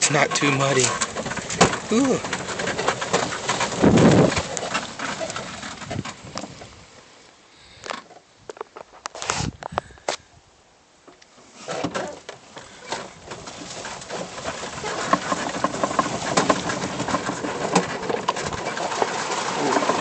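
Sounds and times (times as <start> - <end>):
tyres splashing through mud: 0.0 - 7.0, 11.5 - 20.0.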